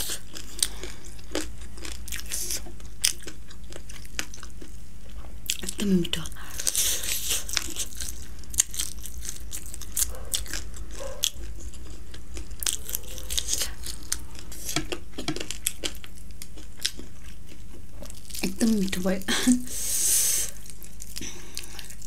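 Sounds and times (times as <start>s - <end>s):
chewing food: 0.0s - 19.2s, 20.5s - 22.0s.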